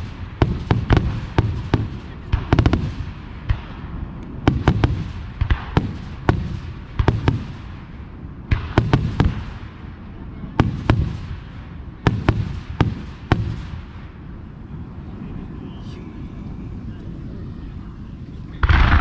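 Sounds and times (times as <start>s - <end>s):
fireworks bangs: 0.0s - 14.3s, 18.6s - 19.0s
low rumbling echo: 0.0s - 19.0s.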